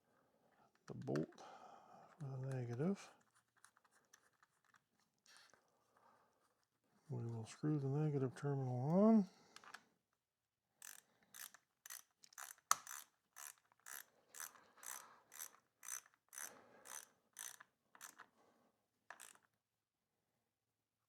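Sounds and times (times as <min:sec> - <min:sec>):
ratchet wrench clicking: 0:10.8 - 0:18.3, 0:19.1 - 0:19.4.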